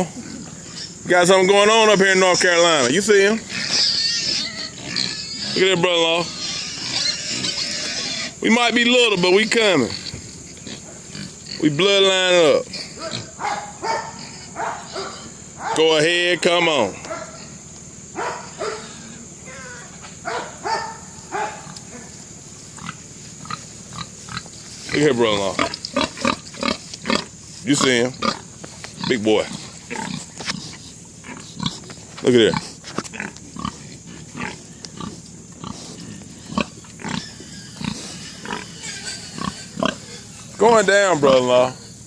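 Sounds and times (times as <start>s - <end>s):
farm animals grunting: 0.0s - 42.0s
dog barking: 13.0s - 15.9s, 17.0s - 17.4s, 18.2s - 18.9s, 20.2s - 22.1s.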